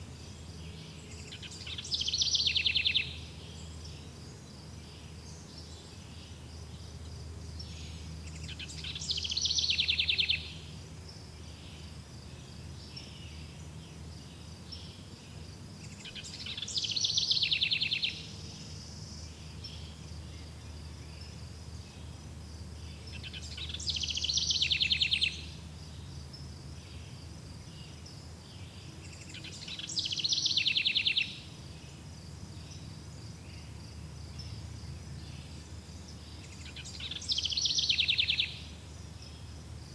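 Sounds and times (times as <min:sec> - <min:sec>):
songbird trilling: 0:01.1 - 0:03.4, 0:08.3 - 0:10.7, 0:15.8 - 0:18.4, 0:23.0 - 0:25.6, 0:29.1 - 0:31.6, 0:35.2 - 0:39.5.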